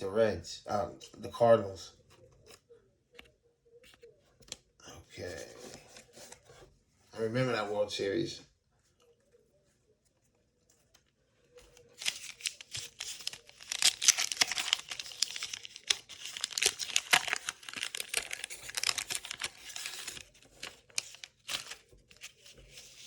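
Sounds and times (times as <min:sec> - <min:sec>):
wax paper wrapper crinkling and tearing: 0:11.8 - 0:23.0.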